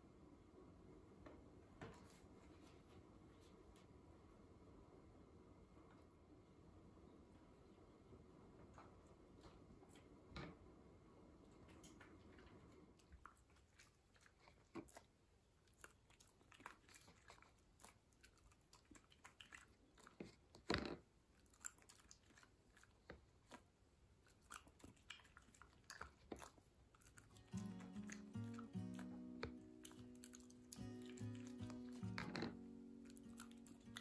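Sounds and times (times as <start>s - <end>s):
crunching and chewing: 11.6s - 34.0s.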